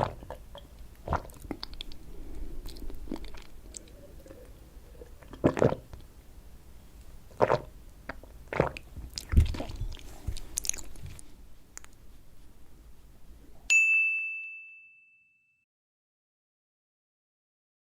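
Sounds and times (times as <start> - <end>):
wet mouth sounds: 0.0 - 6.1, 7.3 - 12.0
chewing and biting: 7.4 - 11.2
bright ding: 13.7 - 15.6.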